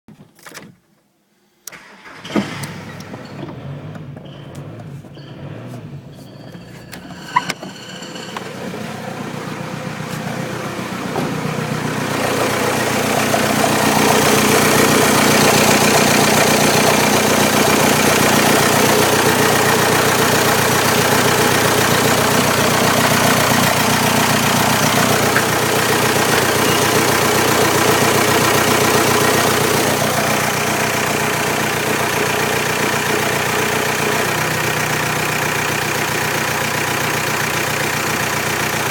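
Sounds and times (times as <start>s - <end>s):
diesel engine idling: 2.0s - 38.9s.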